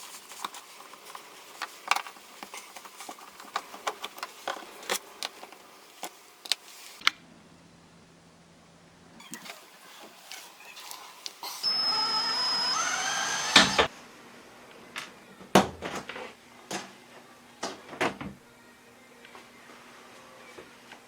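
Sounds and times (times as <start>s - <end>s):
small electric motor whine: 11.4s - 13.9s.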